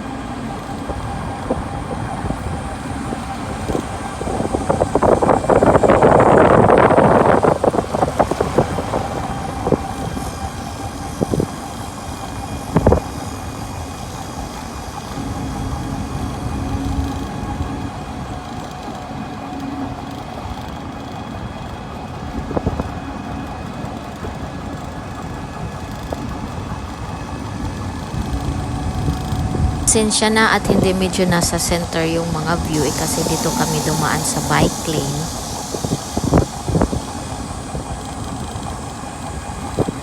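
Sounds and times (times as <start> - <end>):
pedicab body rattling: 0.0 - 31.1
road rumble: 0.0 - 40.0.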